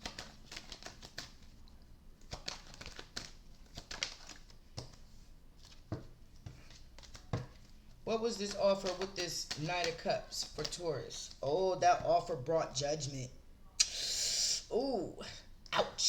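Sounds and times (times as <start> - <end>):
cards rustling and tapping: 0.0 - 12.5.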